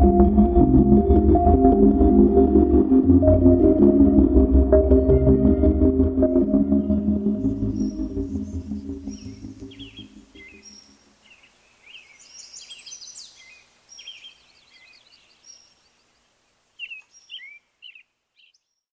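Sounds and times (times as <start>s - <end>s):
low music chord: 0.0s - 10.8s
songbirds chirping: 6.2s - 18.9s.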